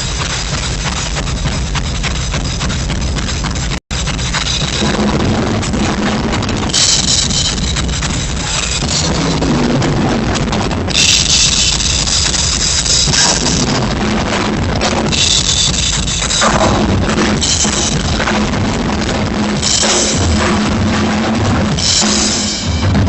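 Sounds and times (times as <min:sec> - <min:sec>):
bass drum and snare: 0:00.0 - 0:23.0
cymbal crashes: 0:04.0 - 0:09.5, 0:10.9 - 0:23.0.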